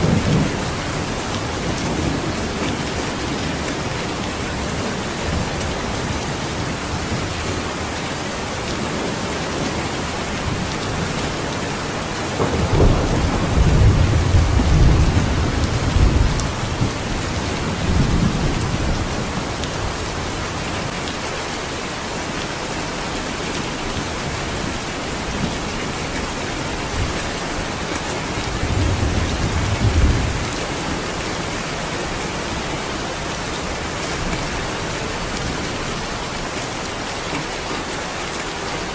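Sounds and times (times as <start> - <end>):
steady rain pouring: 0.0 - 38.9
rolling thunder: 9.6 - 20.3, 26.8 - 31.6.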